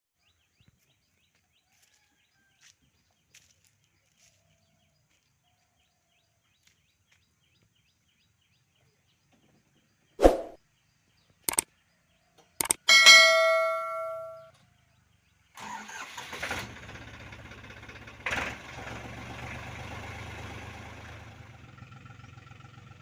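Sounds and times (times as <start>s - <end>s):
soft repeating chirp: 12.6s - 14.5s.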